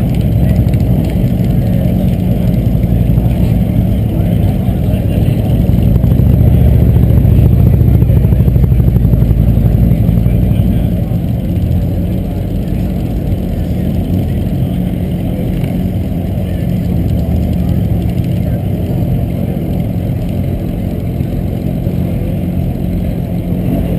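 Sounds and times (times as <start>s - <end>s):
car engine pulsing exhaust: 0.0s - 23.9s.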